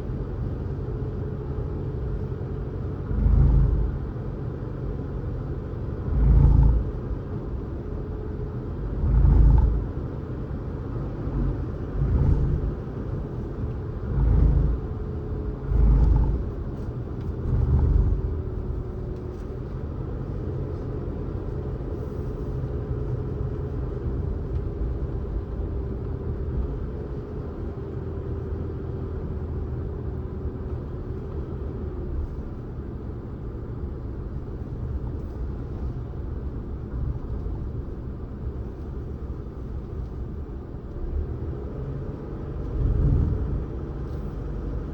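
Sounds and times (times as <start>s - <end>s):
road and tyre noise: 0.0s - 44.9s
heavy low thumps: 11.4s - 13.0s, 13.9s - 15.0s.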